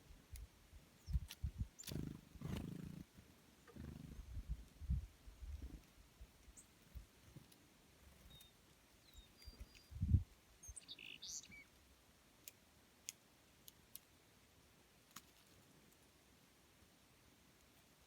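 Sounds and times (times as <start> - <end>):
faint bird chirps: 8.0 - 11.8.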